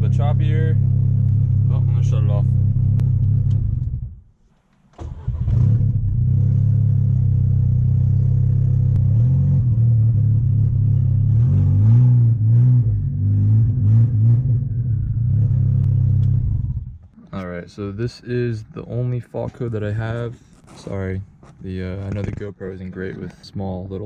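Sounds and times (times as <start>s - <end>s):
car engine idling choppy: 0.0s - 4.2s
engine revving: 0.0s - 4.2s, 5.0s - 17.0s.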